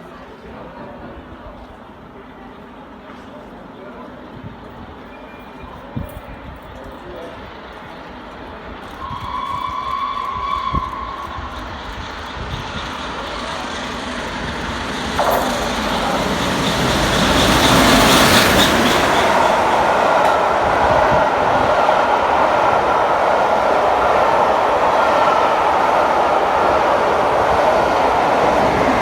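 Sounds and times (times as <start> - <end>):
train passing: 0.3 - 29.0
steam locomotive whistle: 8.9 - 12.1.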